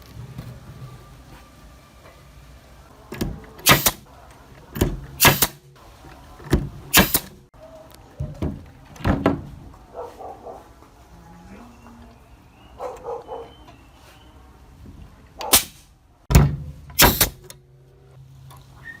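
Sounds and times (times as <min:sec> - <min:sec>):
pneumatic nail gun firing: 0:03.6 - 0:04.0, 0:05.2 - 0:05.6, 0:06.9 - 0:07.4, 0:15.5 - 0:15.9, 0:17.0 - 0:17.5.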